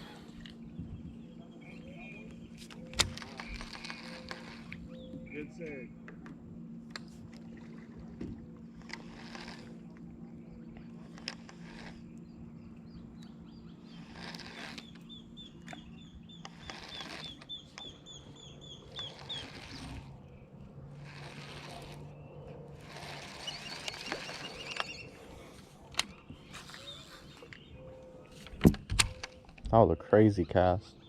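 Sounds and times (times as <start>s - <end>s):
low steady hum: 0.0s - 31.0s
bird chirping: 0.6s - 6.1s, 12.0s - 20.6s, 22.1s - 31.0s
paddle water swishes: 7.0s - 12.7s, 13.8s - 27.5s.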